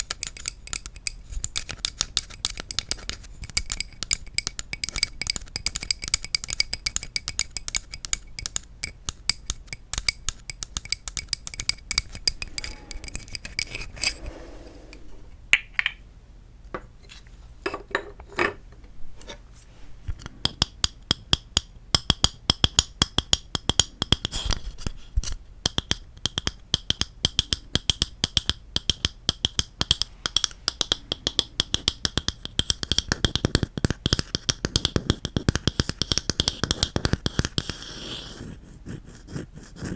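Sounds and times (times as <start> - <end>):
fingertips tapping on wood: 0.0 - 13.8, 20.1 - 24.6, 25.6 - 38.2.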